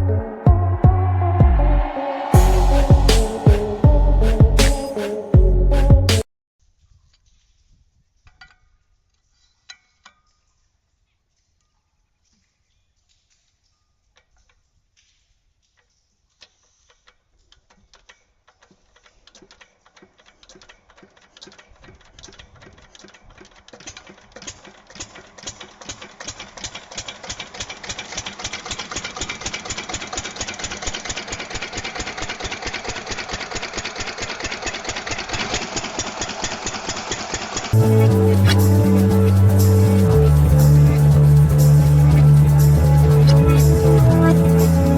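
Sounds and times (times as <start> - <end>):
small engine starting up: 18.6 - 44.9.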